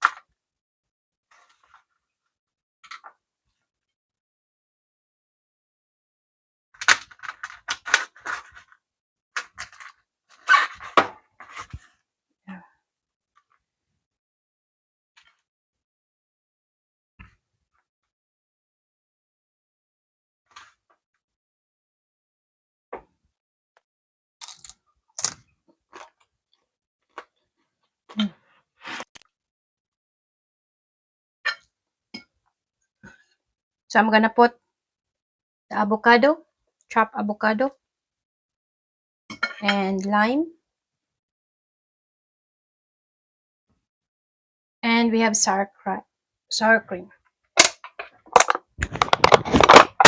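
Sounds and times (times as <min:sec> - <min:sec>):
food handling scrapes and rustles: 0:07.2 - 0:08.8.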